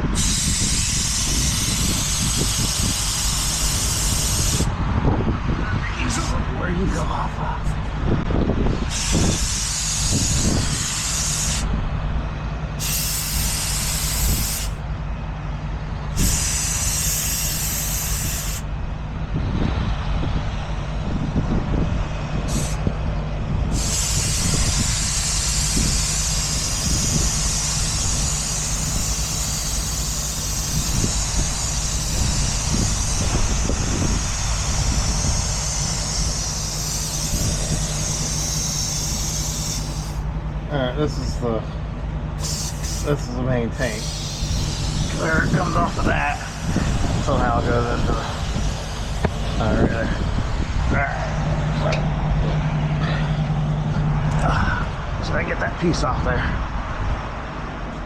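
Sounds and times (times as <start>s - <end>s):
compressed air hissing: 0.0s - 4.8s, 8.7s - 11.8s, 12.8s - 14.8s, 16.1s - 18.7s, 22.4s - 23.0s, 23.6s - 40.4s, 42.3s - 51.8s
truck engine idling: 5.8s - 55.2s.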